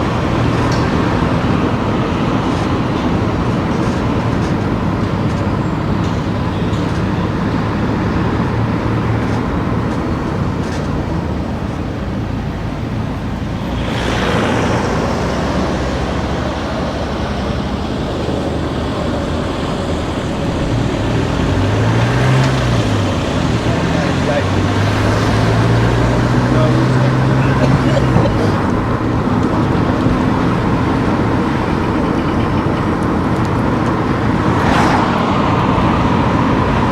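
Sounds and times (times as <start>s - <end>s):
car engine and road noise: 0.0s - 36.9s.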